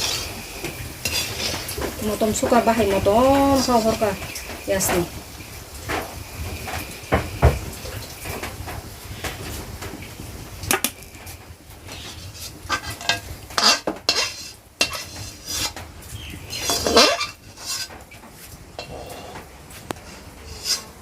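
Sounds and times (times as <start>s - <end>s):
metal utensils scraping a pot: 0.0s - 5.1s, 11.2s - 21.0s.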